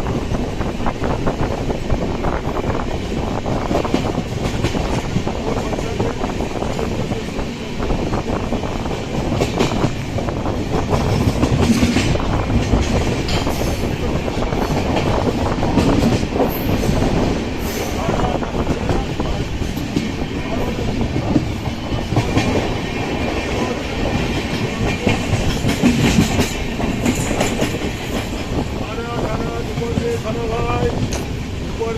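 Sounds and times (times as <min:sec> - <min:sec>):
train coaches rumbling: 0:00.0 - 0:31.9
wheels clacking over rail joints: 0:08.8 - 0:31.9.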